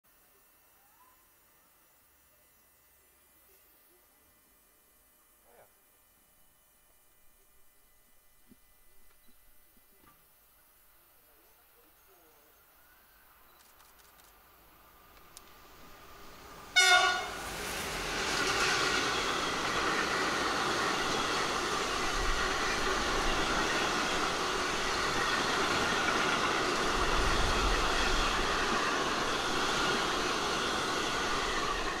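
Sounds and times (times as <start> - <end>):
freight train passing: 14.6 - 32.0.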